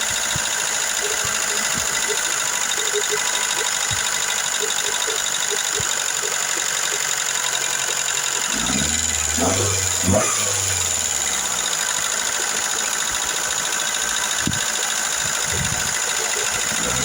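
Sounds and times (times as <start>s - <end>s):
valve lifters ticking: 0.0s - 8.7s
car engine idling: 0.0s - 17.0s.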